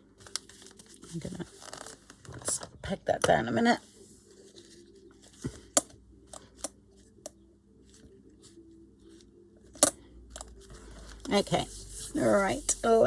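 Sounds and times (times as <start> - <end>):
paper rustling: 0.2 - 2.7.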